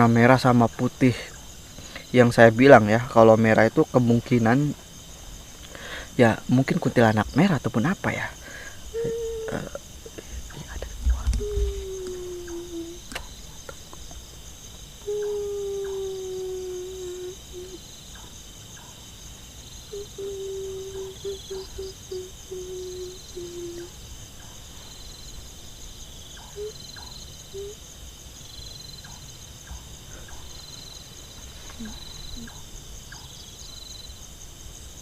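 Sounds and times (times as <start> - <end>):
night insects chirping: 0.0 - 35.0
low wailing tone: 11.3 - 13.0.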